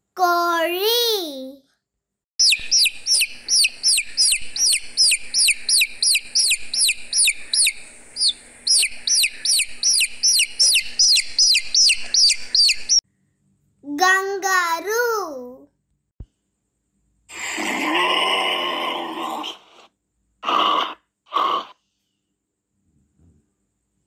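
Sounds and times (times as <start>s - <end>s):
chicks peeping: 2.4s - 13.0s.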